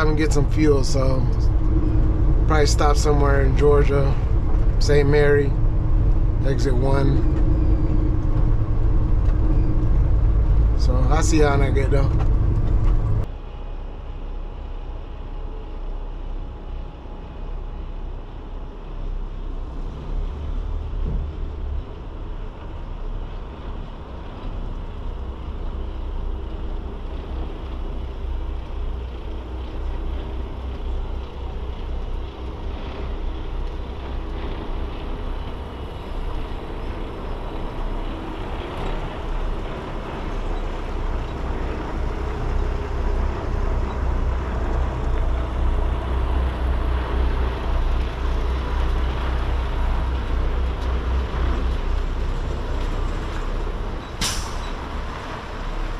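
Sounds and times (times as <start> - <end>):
truck engine and road noise: 0.0 - 55.9.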